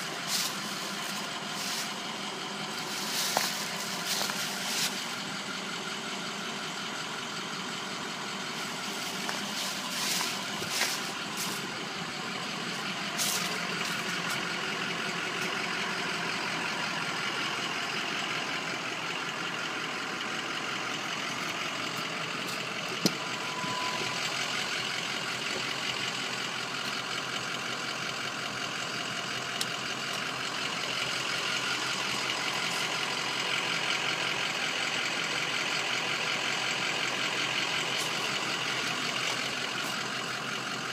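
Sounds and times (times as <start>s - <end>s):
diesel engine running: 0.0s - 40.9s
brief beep: 23.2s - 24.2s.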